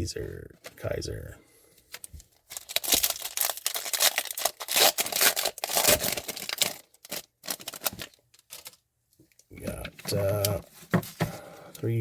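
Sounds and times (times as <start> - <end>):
wrapper crinkling and tearing: 1.9 - 8.8.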